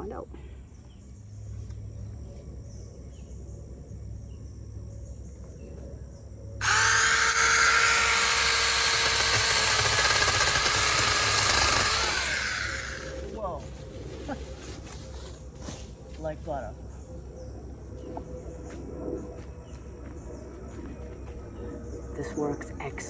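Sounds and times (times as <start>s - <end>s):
insects chirping: 0.0s - 23.0s
electric chainsaw cutting branch: 6.6s - 13.3s.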